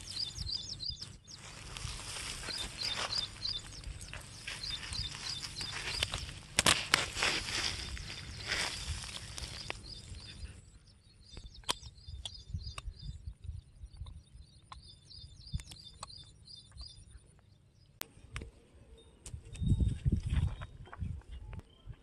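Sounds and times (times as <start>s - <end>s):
bird chirping: 0.0s - 22.0s
wind rumble on microphone: 11.3s - 15.8s, 18.2s - 22.0s
sharp clicks: 11.3s - 17.0s.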